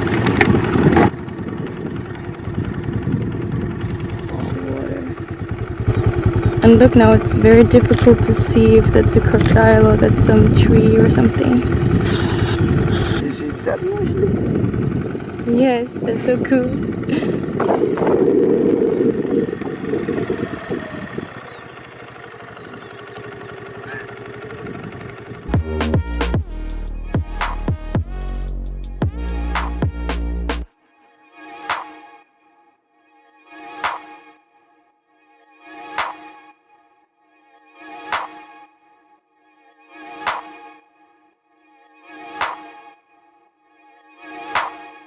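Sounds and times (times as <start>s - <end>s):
vehicle engine running: 0.0s - 30.7s
low rumble: 25.5s - 30.6s.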